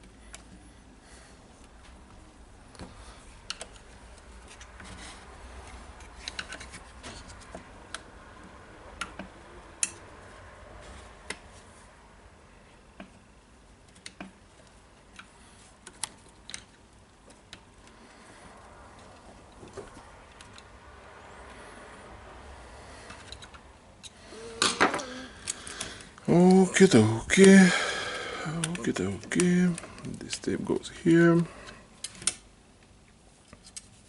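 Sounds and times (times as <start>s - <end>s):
clicks of plastic parts handled: 2.7s - 8.1s.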